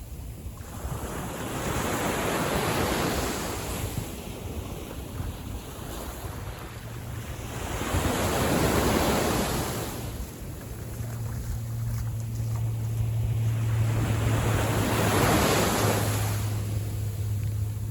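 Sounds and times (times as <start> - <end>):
small waves breaking on beach: 0.0 - 17.9
wind on microphone: 0.0 - 17.9
low steady hum: 10.0 - 17.9.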